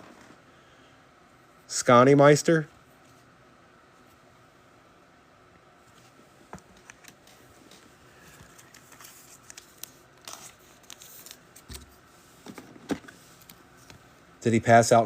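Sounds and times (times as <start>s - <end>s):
trading cards clicking and rustling: 6.6s - 14.0s.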